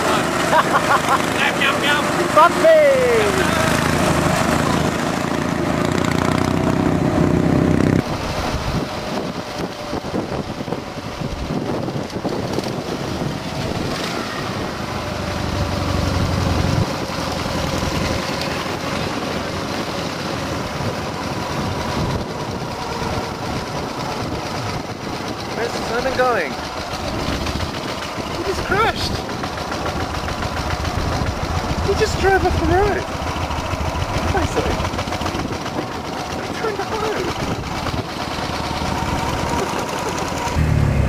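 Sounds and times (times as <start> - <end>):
motorcycle engine running: 0.0 - 41.0
road and wind noise: 0.0 - 41.0.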